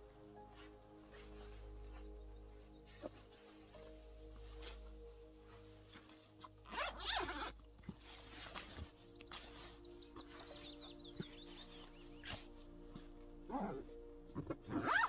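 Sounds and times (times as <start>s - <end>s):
clothing rustling: 0.1s - 15.0s
jacket zipper pulled open: 6.7s - 7.6s, 14.7s - 15.0s
small bird singing: 6.7s - 13.0s.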